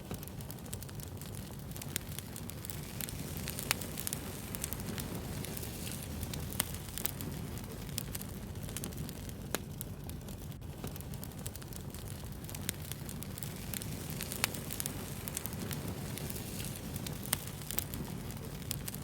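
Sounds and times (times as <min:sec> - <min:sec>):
campfire flame rumble: 0:00.0 - 0:19.0
fire crackles and pops: 0:00.0 - 0:19.0.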